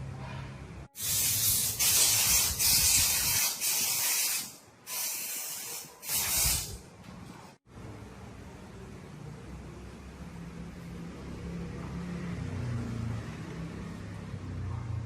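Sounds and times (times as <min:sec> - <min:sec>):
pressurised spray hissing: 0:01.0 - 0:06.8.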